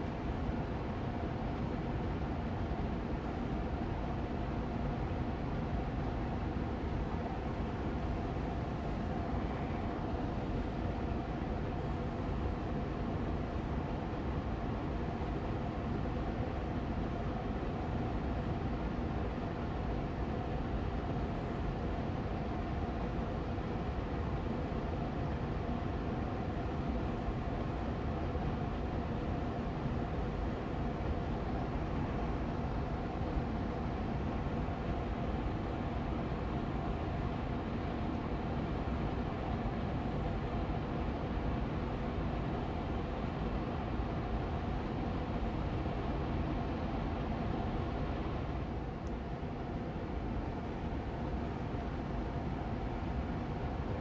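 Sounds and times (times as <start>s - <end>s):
air purifier fan running: 0.0s - 54.0s.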